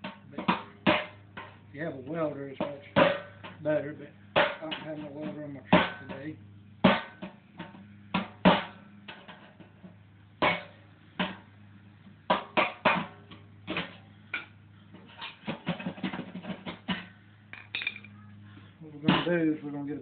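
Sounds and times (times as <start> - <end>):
steady low hum: 0.0 - 20.0
metal knocks and clinks: 17.5 - 18.2.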